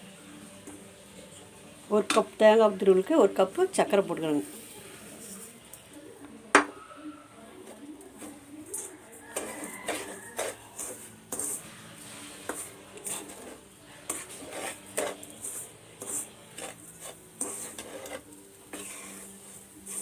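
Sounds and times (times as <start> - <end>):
metal spoon scraping a pan: 7.3 - 20.0.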